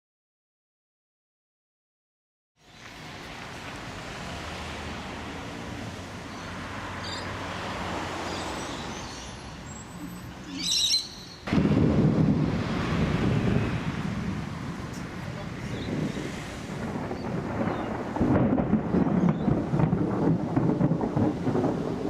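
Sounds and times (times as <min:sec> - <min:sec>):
outdoor hiss: 0:02.6 - 0:17.6
bird chirps: 0:08.2 - 0:11.5
lightning strike crack: 0:11.4 - 0:22.0
heavy low thunder rumble: 0:11.5 - 0:22.0.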